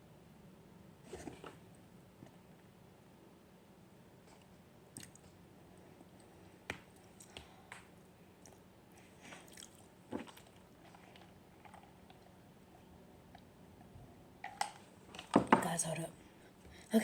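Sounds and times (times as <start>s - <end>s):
wet chewing and mouth smacks: 4.4s - 5.4s, 6.9s - 7.5s, 9.3s - 12.2s.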